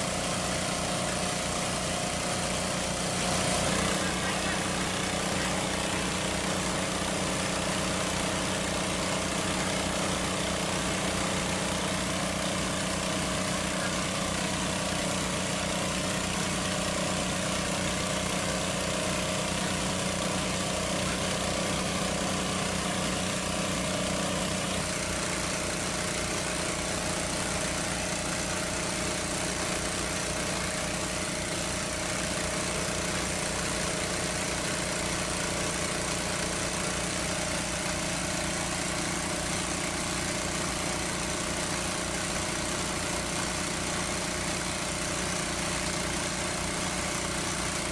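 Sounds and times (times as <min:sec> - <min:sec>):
small engine running: 0:00.0 - 0:47.9.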